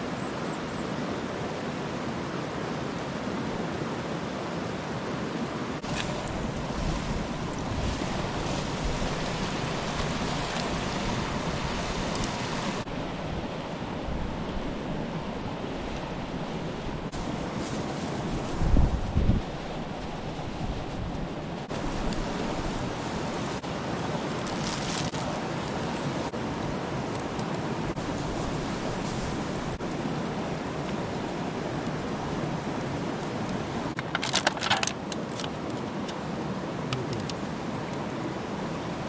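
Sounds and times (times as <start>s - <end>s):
campfire hissing: 5.8s - 23.7s, 28.0s - 32.4s.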